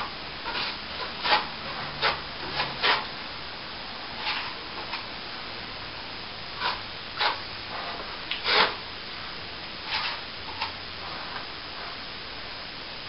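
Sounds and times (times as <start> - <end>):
trowel scraping wet plaster: 0.0 - 3.1, 4.2 - 5.0, 6.6 - 8.8, 9.8 - 10.7.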